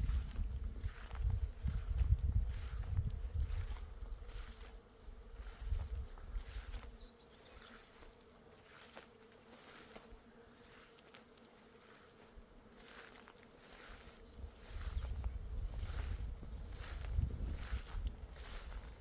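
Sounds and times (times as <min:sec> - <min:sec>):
bees buzzing: 0:03.2 - 0:19.0.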